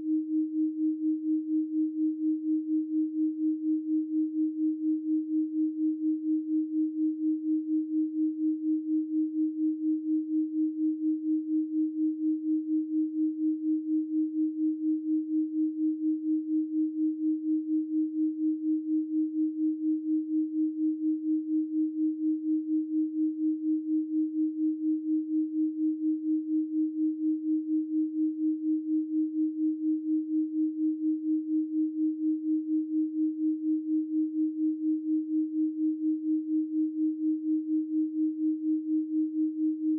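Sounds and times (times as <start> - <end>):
pulsing sine tone: 0.0 - 39.9.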